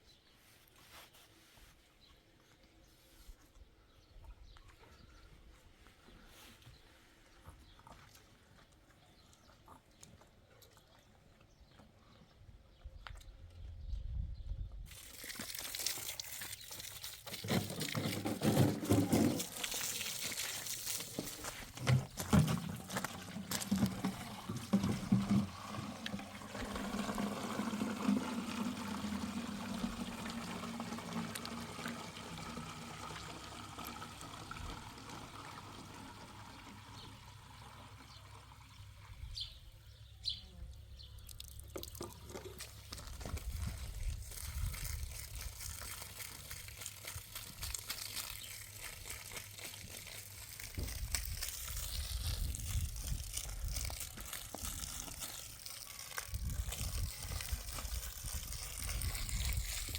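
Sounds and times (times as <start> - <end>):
water pouring and trickling: 14.9 - 39.3, 41.2 - 59.9.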